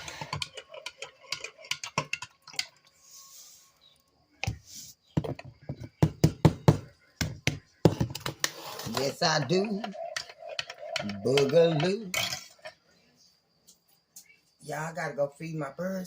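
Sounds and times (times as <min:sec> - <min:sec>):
spoon clinking on mug: 0:09.5 - 0:12.4.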